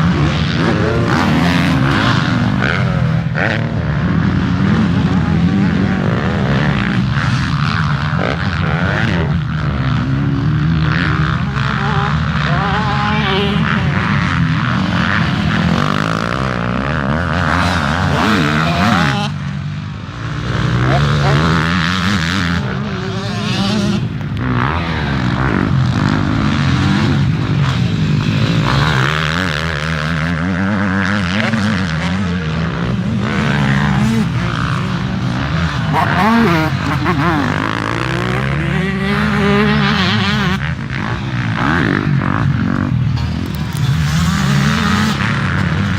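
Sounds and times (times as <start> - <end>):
motocross bike engines revving: 0.0 - 45.9.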